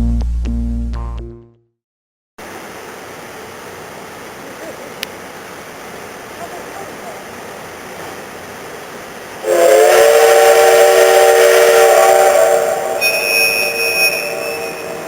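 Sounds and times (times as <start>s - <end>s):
steam locomotive whistle: 9.4s - 15.0s
thin high-pitched tone: 12.8s - 15.0s.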